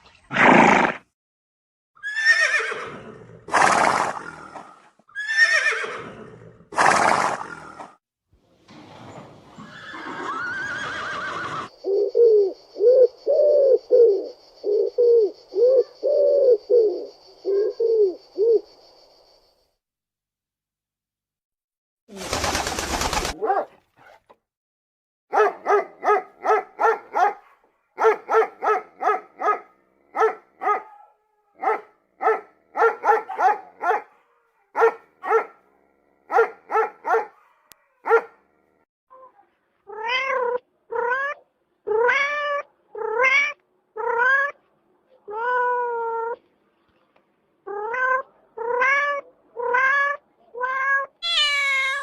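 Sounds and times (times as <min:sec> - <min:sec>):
rising and falling animal cries: 0:02.0 - 0:02.9, 0:05.1 - 0:06.0, 0:09.6 - 0:18.6, 0:51.0 - 0:52.0
quick short animal calls: 0:51.2 - 0:52.0.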